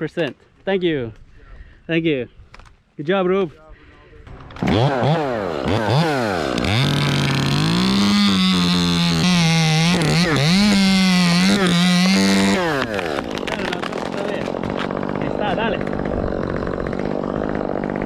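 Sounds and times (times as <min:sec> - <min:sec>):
chainsaw cutting wood: 0:04.3 - 0:18.0.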